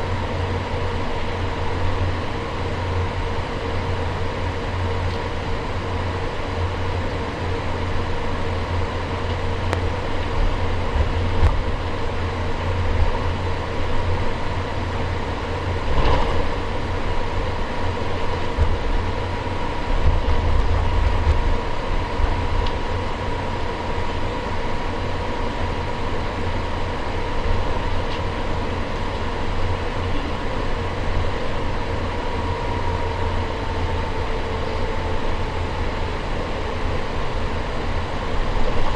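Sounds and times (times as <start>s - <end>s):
jet engines humming: 0.0s - 38.9s
wheels rumbling: 0.0s - 38.9s
aircraft bump: 15.8s - 16.8s.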